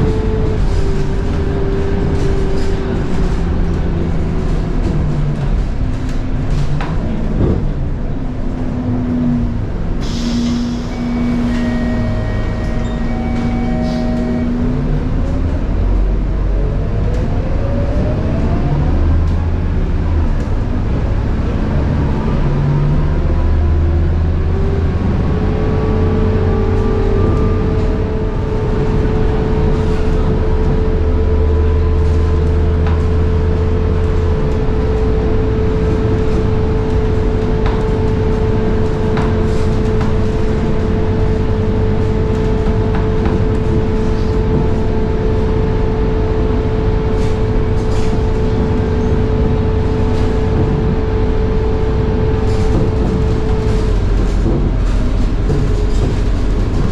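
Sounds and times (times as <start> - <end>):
bus diesel engine: 0.0 - 56.9
bus gearbox whine: 10.0 - 15.8.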